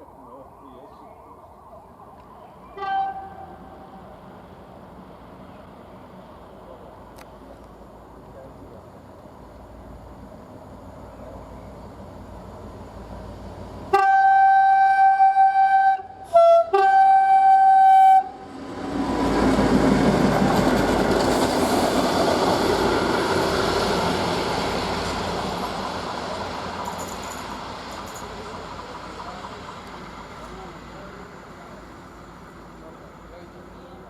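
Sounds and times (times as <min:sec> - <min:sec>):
train horn blast: 0:02.7 - 0:04.0, 0:13.9 - 0:18.5
train rumbling: 0:02.7 - 0:34.0.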